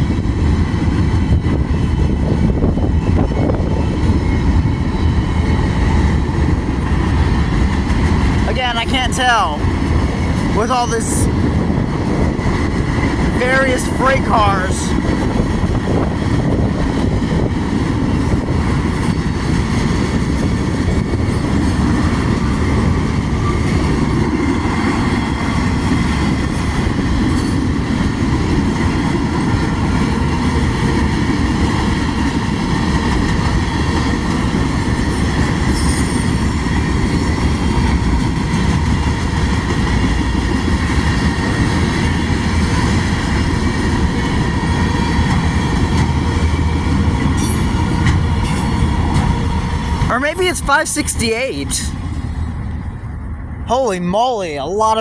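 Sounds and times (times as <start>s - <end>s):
train wheels rumbling on rails: 0.0s - 50.8s
faint high ringing: 35.7s - 36.6s, 47.4s - 48.9s.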